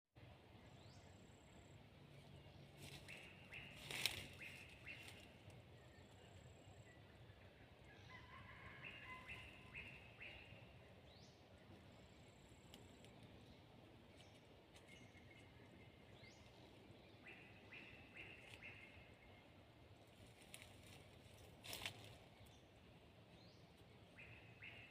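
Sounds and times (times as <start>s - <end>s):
rooster crowing faintly: 8.0s - 9.8s.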